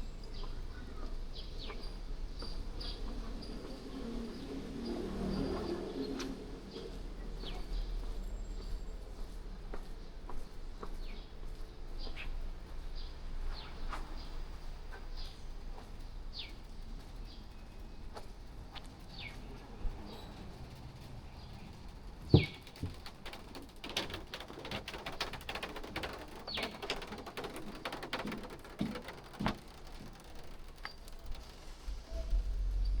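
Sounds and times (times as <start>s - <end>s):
light clicks and taps: 20.6s - 31.6s.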